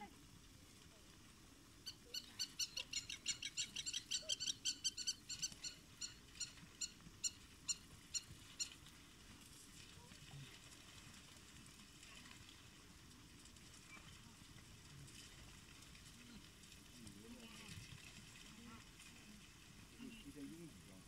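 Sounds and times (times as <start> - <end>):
bird chirping: 1.9 - 8.8.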